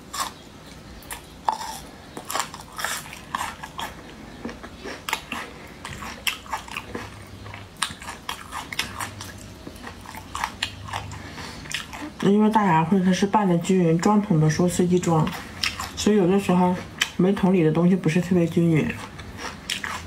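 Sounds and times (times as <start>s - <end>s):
person chewing close up: 0.0s - 12.3s, 15.0s - 17.2s, 18.9s - 20.0s.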